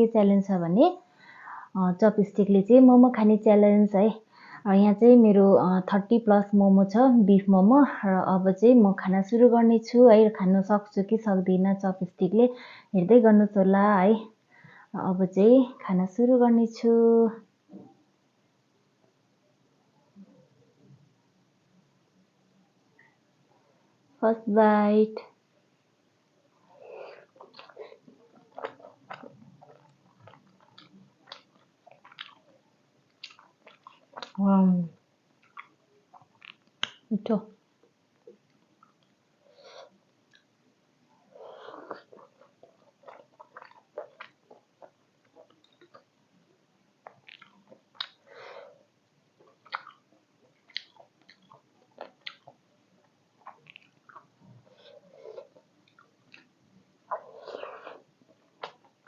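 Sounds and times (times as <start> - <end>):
breathing: 1.1 - 1.8, 4.3 - 4.7, 12.5 - 13.0, 14.5 - 15.0, 48.2 - 48.8
chewing food: 26.6 - 34.4, 35.3 - 37.0, 41.2 - 46.2, 47.0 - 48.5, 49.3 - 59.0
wet mouth clicks and smacks: 35.4 - 37.1, 47.0 - 48.2, 49.6 - 50.0, 50.6 - 52.6.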